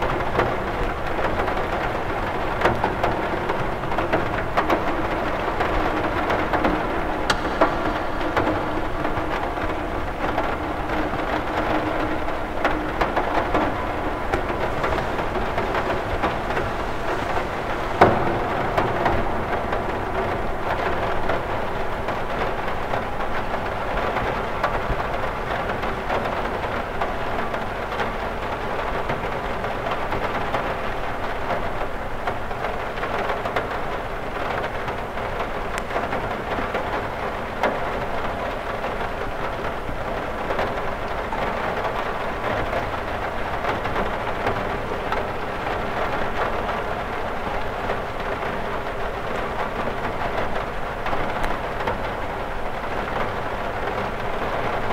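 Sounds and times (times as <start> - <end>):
rain on a window: 0.0 - 54.9
sharp drop tap: 7.3 - 8.6.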